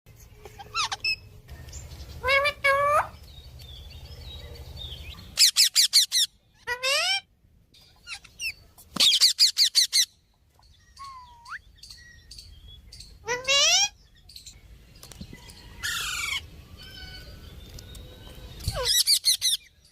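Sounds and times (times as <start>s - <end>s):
parrot calling: 0.4s - 1.3s, 2.2s - 3.2s, 5.2s - 7.3s, 13.1s - 14.0s
shrill parrot chirps: 0.6s - 1.3s, 5.4s - 7.3s, 7.9s - 10.2s, 10.9s - 11.7s, 13.0s - 14.0s.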